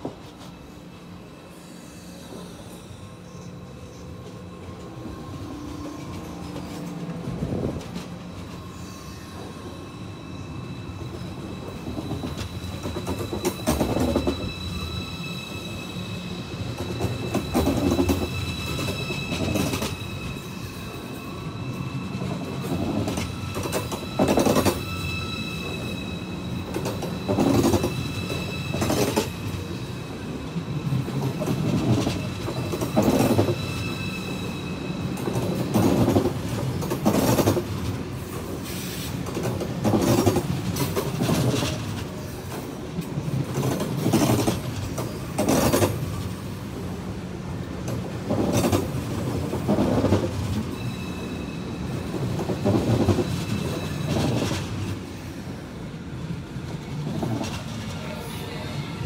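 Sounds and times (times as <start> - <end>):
high-pitched train whine: 0.0 - 59.0.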